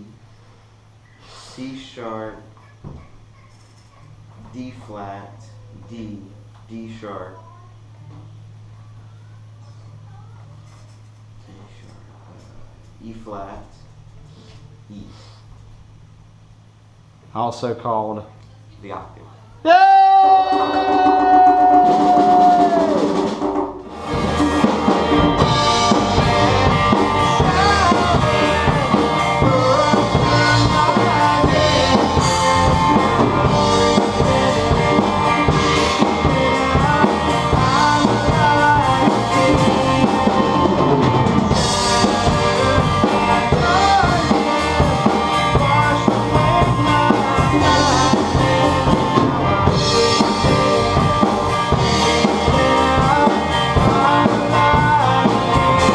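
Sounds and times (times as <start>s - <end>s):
drums steady beat: 19.8s - 55.9s
live band playing: 20.5s - 55.9s.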